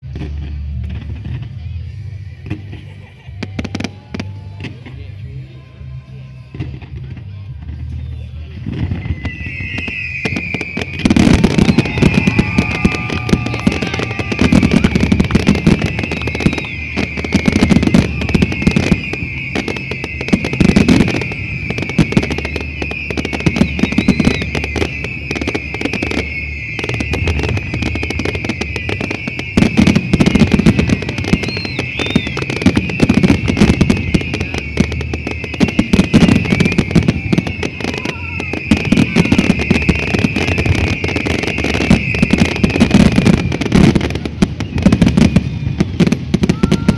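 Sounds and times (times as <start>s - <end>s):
deep fireworks booms: 0.0s - 5.4s, 6.5s - 46.9s
fireworks bangs and crackling: 0.0s - 46.9s
high hissing whistle: 9.0s - 43.9s.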